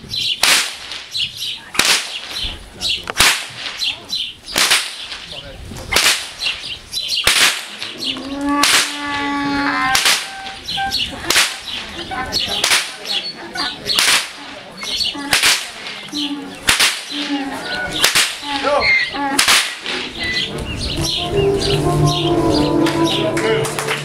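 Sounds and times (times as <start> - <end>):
whip cracking: 0.4 - 2.5, 3.1 - 8.0, 8.6 - 9.0, 9.9 - 10.6, 11.2 - 13.2, 13.9 - 17.4, 18.0 - 18.7, 19.3 - 20.2.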